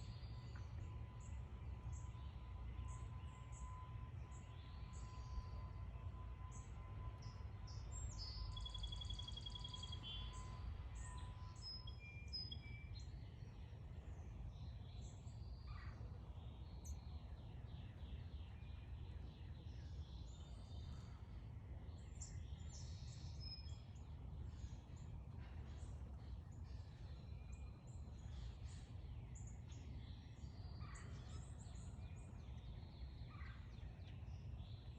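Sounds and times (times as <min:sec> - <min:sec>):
bird trill: 0:00.0 - 0:13.2, 0:22.0 - 0:34.9
birds chirping and calling: 0:22.0 - 0:34.9.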